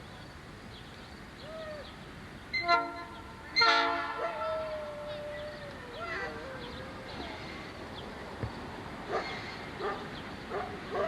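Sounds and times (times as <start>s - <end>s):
locomotive air horn blasts: 2.6s - 4.3s.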